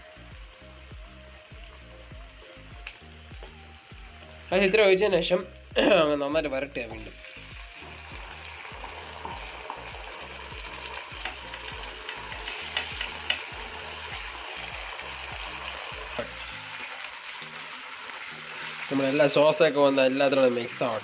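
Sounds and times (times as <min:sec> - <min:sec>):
vegetables sizzling in hot oil: 0:00.0 - 0:21.0
spatula tapping pan: 0:12.3 - 0:13.5.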